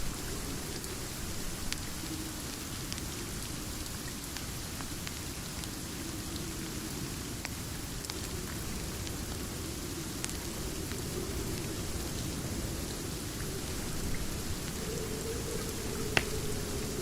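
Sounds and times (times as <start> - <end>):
steady rain hiss: 0.0 - 17.0
single raindrop ticks: 15.6 - 16.6.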